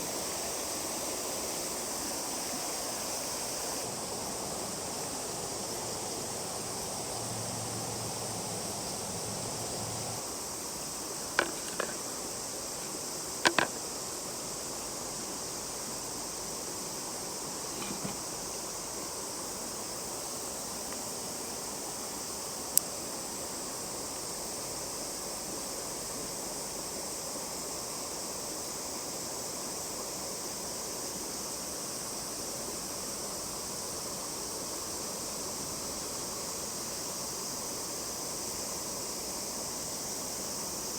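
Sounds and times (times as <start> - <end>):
running water rushing: 0.0 - 10.2
sharp clicks or knocks: 11.4 - 12.0, 13.4 - 13.8.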